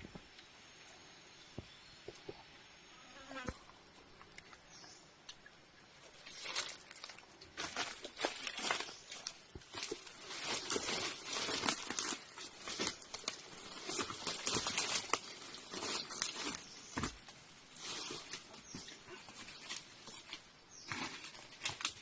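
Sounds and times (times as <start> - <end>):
rustling and crackling of dry brush: 5.9 - 22.0.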